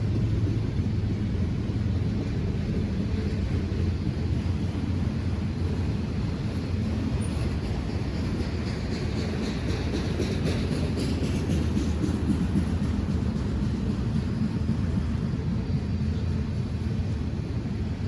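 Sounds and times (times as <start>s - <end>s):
train rumbling past: 0.0s - 18.0s.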